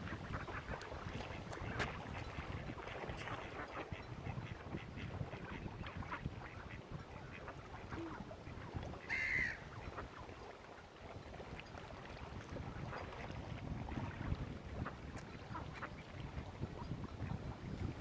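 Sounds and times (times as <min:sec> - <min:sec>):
ducks quacking: 0:09.1 - 0:10.0.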